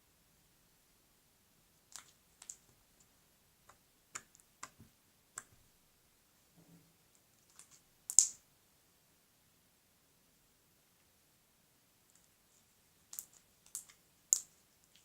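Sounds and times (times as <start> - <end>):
slime squishing with clicks and pops: 1.9 - 3.1, 3.7 - 5.7, 7.4 - 8.4, 13.1 - 15.0.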